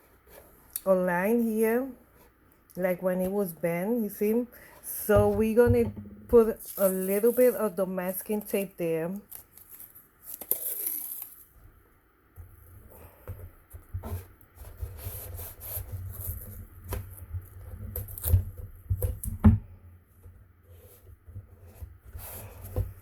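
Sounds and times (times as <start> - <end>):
tape and cardboard rubbing: 13.4 - 19.4.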